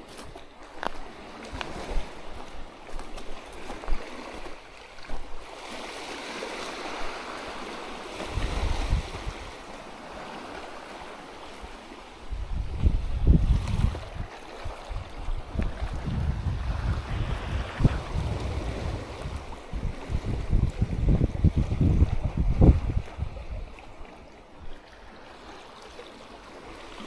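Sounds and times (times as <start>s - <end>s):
surf washing on shore: 0.0s - 27.0s
wind: 0.0s - 27.0s
wind buffeting microphone: 8.2s - 9.6s, 12.2s - 24.8s.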